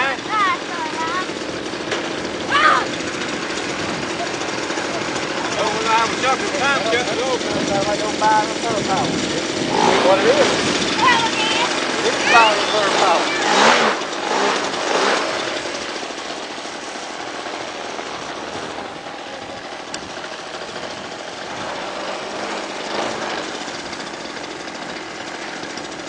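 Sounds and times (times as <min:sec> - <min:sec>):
two-stroke model engine running: 0:00.0 - 0:26.0.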